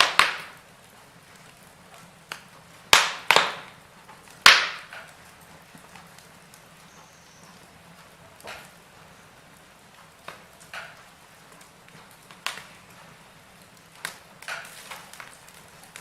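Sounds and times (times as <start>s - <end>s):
crackles and pops of burning logs: 0.0s - 16.0s
fire hissing: 0.0s - 16.0s.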